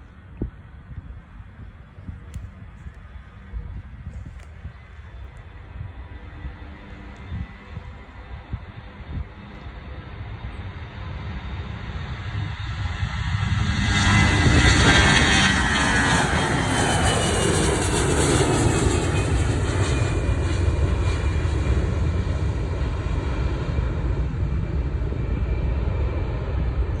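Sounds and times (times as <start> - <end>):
jet engines roaring: 0.0 - 27.0.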